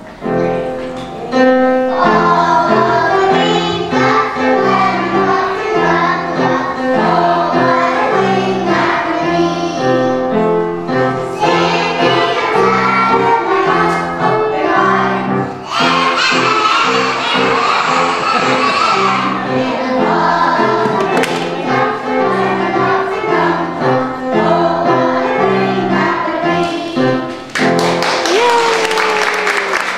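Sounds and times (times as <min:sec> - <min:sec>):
children's choir singing: 0:00.0 - 0:28.2.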